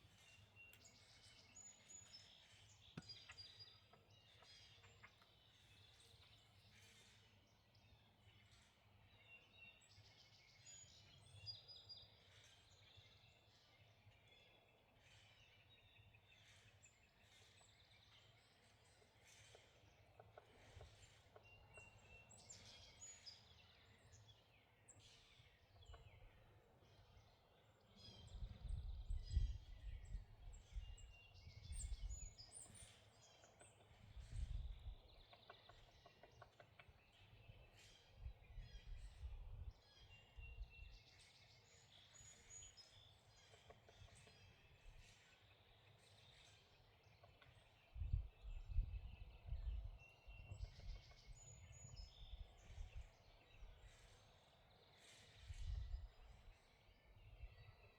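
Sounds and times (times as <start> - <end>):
songbirds chirping: 0.0 - 57.9.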